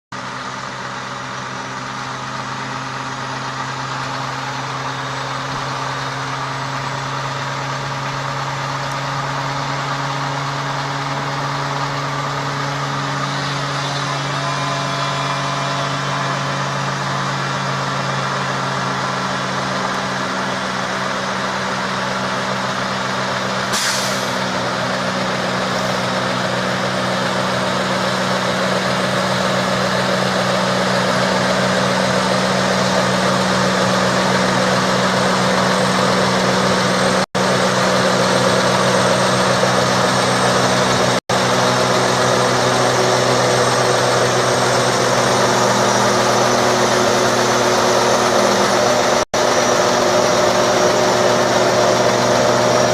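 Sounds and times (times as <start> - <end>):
truck engine running: 0.1 - 52.9
short hiss: 23.7 - 24.4.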